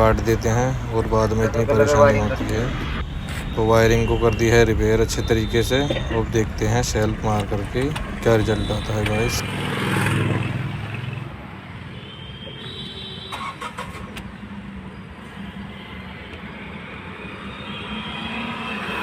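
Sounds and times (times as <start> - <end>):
car engine starting and idling: 0.0 - 9.4, 13.3 - 15.4.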